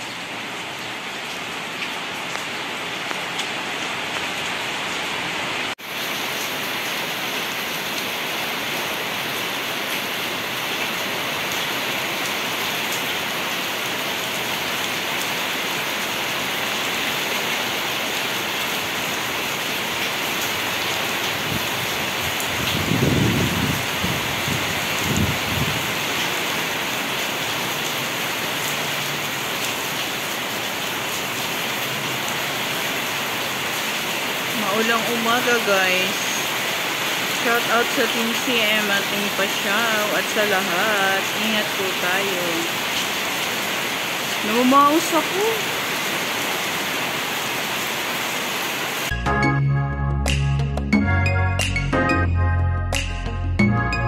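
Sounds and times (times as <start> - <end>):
steady rain: 0.0 - 49.1.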